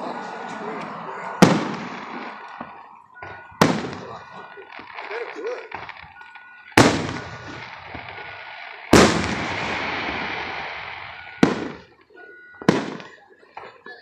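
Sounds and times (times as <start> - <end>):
firework shells bursting: 1.4 - 12.0.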